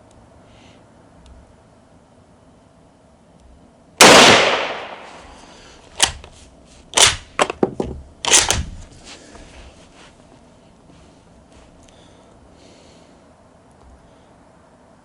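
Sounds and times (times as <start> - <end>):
rifle shot: 4.0 - 5.2, 7.0 - 7.2, 8.3 - 8.6
rifle bolt metallic clacks: 8.2 - 8.6.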